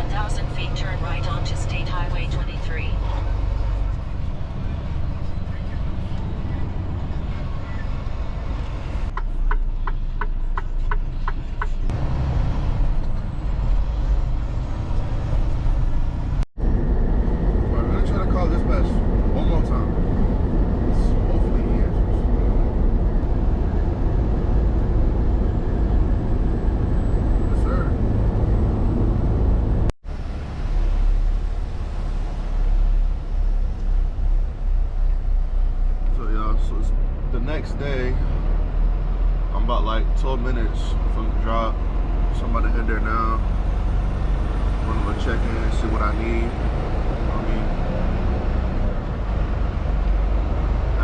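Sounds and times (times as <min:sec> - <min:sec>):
truck engine and road rumble: 0:00.0 - 0:51.0.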